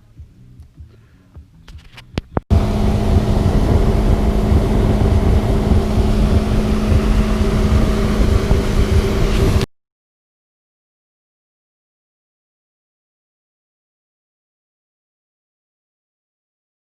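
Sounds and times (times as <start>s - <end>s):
engine running: 2.4s - 9.7s
wind buffeting microphone: 2.5s - 9.7s.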